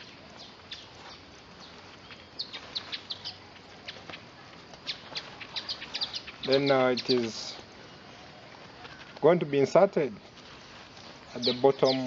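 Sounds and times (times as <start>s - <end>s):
faint outdoor background: 0.0s - 12.0s
small birds chirping: 0.0s - 12.0s.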